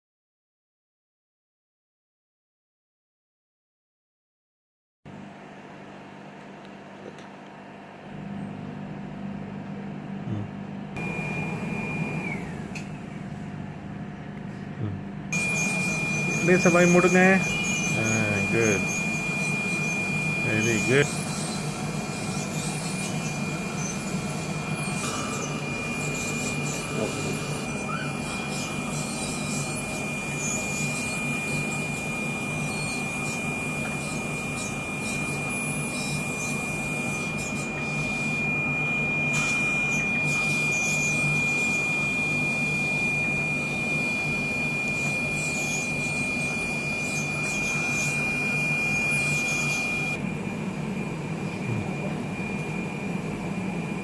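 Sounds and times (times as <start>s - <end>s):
steady low hum: 8.0s - 31.5s, 46.2s - 54.0s
dental drill whining: 11.0s - 13.0s, 15.3s - 54.0s.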